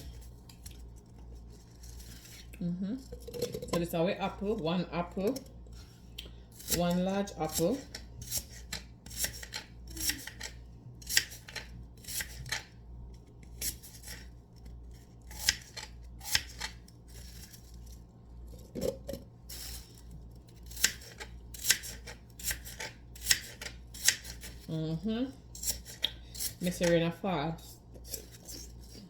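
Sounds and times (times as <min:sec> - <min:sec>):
knife cutting apple on board: 0:06.6 - 0:12.7, 0:15.3 - 0:17.5, 0:20.6 - 0:24.7, 0:25.6 - 0:29.0.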